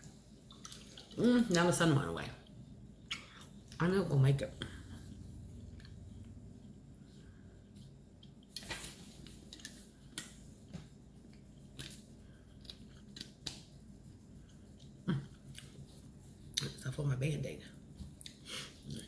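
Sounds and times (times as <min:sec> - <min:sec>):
person chewing food: 0:00.3 - 0:01.2, 0:04.7 - 0:16.6, 0:18.2 - 0:19.0.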